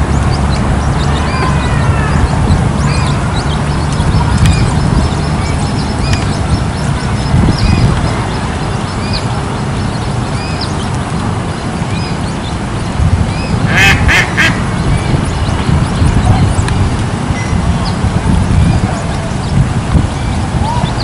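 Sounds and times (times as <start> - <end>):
chicks peeping: 0.0 - 21.0
low rumble: 0.0 - 21.0
nasal quacking bird calls: 13.7 - 14.6.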